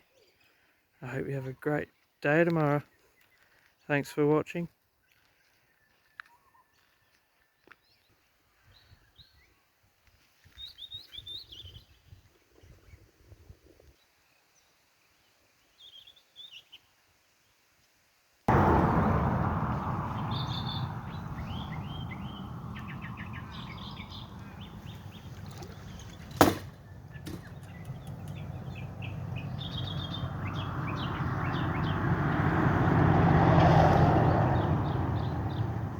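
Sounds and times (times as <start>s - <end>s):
small birds chirping: 18.5s - 32.9s, 33.6s - 35.9s
low outdoor rumble: 18.5s - 35.9s.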